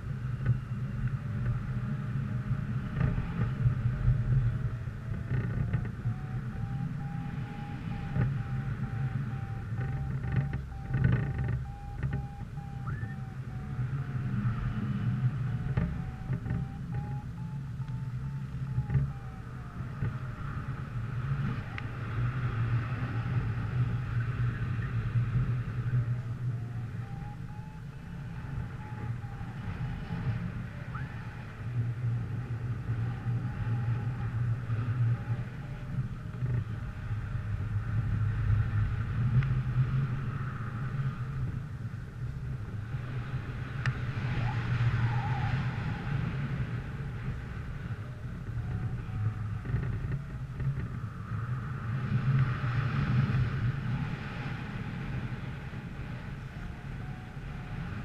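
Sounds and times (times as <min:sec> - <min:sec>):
vehicle engine running: 0:00.0 - 0:44.5
wind on microphone: 0:00.0 - 0:58.0.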